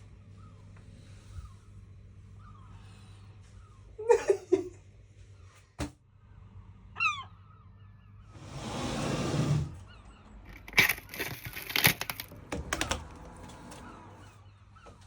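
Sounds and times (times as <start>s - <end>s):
seagull calls: 7.0s - 8.3s.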